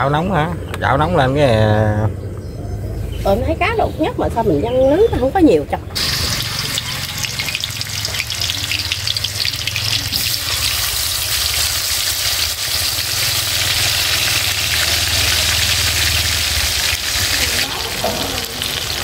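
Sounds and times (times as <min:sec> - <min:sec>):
meat sizzling in hot oil: 0:06.0 - 0:19.0.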